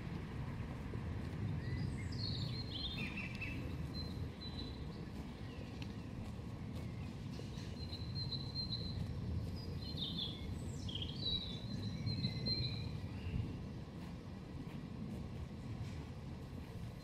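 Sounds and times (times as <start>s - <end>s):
low outdoor rumble: 0.0s - 17.0s
songbird chirps and trills: 1.6s - 14.1s.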